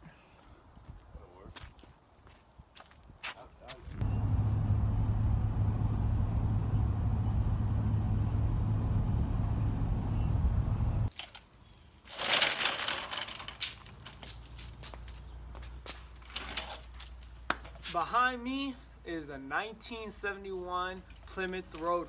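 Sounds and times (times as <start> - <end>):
vehicle rumble: 4.0 - 11.1.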